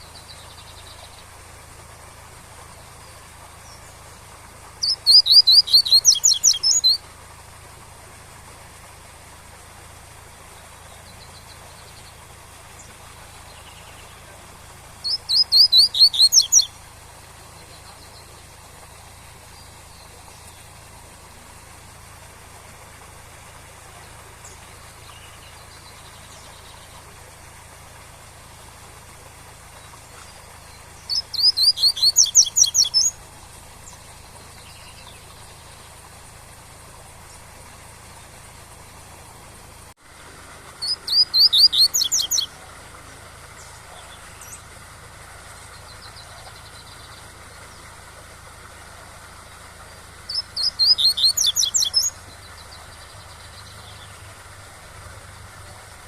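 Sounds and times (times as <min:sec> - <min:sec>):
bird singing high notes: 0:04.8 - 0:07.0, 0:15.0 - 0:16.7, 0:40.8 - 0:42.5
waterfall rushing: 0:37.8 - 0:56.0.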